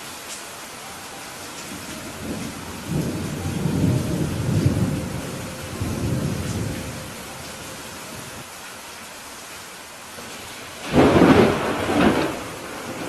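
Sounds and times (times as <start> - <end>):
steady rain: 0.0 - 13.0
thunder rolling: 1.7 - 8.4, 10.8 - 13.0.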